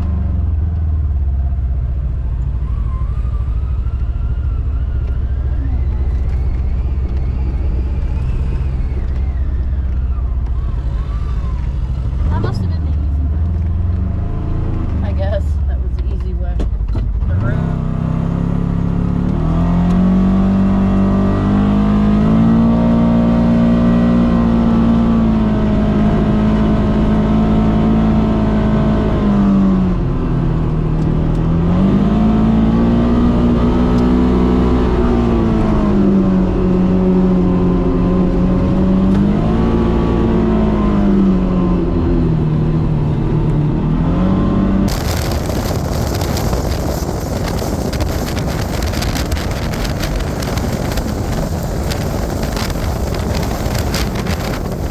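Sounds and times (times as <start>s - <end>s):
engine revving: 3.0s - 16.4s, 17.2s - 54.9s
wind on microphone: 3.2s - 13.5s, 31.4s - 54.9s.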